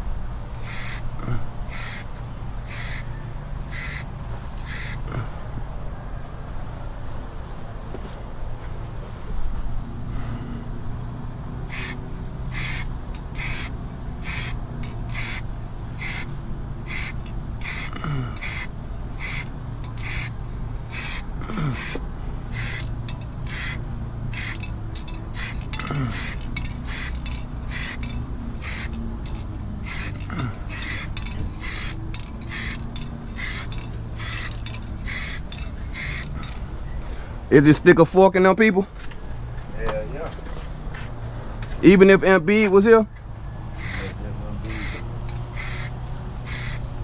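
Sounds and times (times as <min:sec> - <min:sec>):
spray paint hissing bursts: 0:00.6 - 0:05.1, 0:11.6 - 0:36.6, 0:43.7 - 0:47.0
steady low hum: 0:09.2 - 0:37.5.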